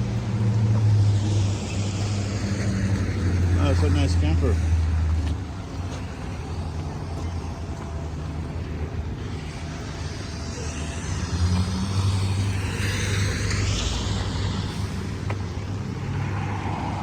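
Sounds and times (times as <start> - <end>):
vehicle engine rumble: 0.0 - 17.0
tyre hiss: 9.2 - 16.0.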